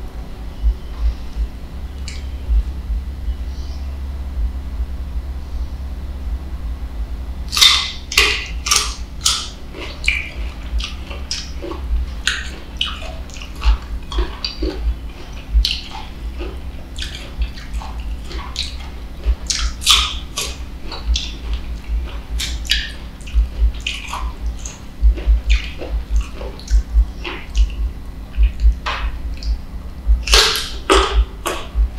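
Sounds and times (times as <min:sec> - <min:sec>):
steady low hum: 0:00.0 - 0:31.9
crunchy chewing: 0:07.4 - 0:31.9.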